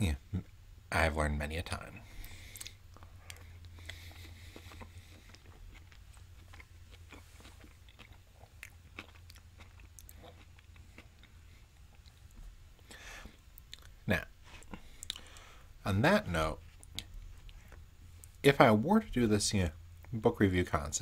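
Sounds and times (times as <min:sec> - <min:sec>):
steady low hum: 0:00.0 - 0:21.0
wet chewing with mouth clicks: 0:02.2 - 0:15.5, 0:16.6 - 0:18.4.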